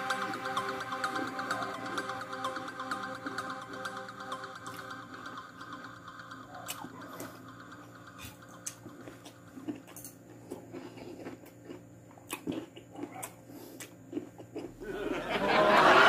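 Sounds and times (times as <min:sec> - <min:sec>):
wet chewing and mouth clicks: 0:08.2 - 0:14.7
loud voices: 0:14.8 - 0:16.0
people laughing: 0:14.8 - 0:16.0.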